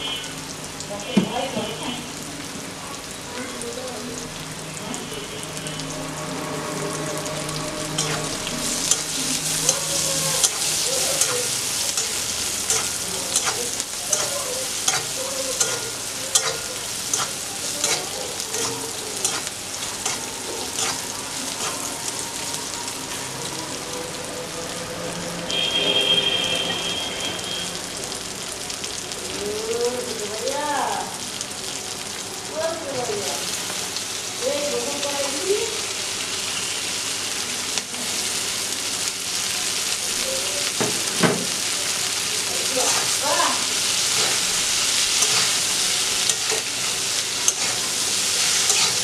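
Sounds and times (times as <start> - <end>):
onions sizzling in hot oil: 0.0 - 49.0
metal spatula scraping pan: 6.5 - 21.9, 44.0 - 49.0.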